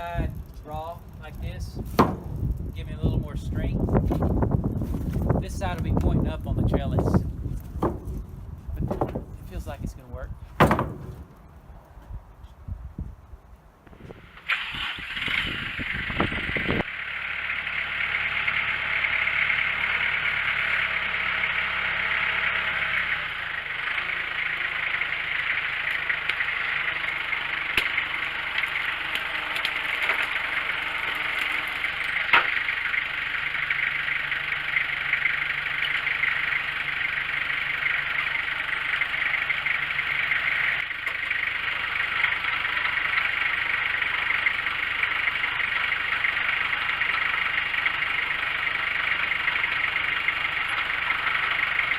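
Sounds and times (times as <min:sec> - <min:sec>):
sawmill engine hum: 0:00.0 - 0:12.0, 0:13.9 - 0:51.9
sharp knock: 0:01.9 - 0:02.4, 0:10.6 - 0:11.4.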